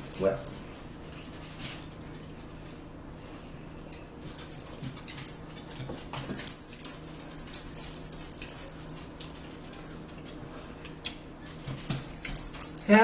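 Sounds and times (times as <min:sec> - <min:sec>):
chewing and wet mouth sounds: 0:09.1 - 0:11.6.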